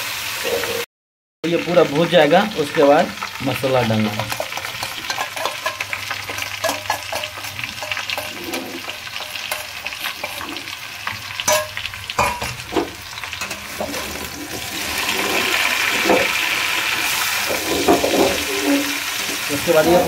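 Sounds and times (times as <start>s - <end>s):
food sizzling in oil: 0.0s - 0.8s, 1.4s - 20.0s
utensils clinking on pan: 4.0s - 16.4s, 17.1s - 20.0s
spatula scraping pan: 4.0s - 20.0s.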